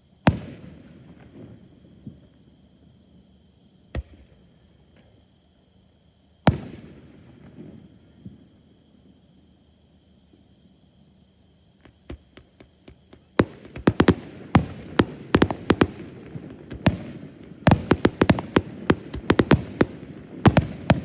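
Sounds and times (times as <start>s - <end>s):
fireworks bursting: 12.0s - 21.0s.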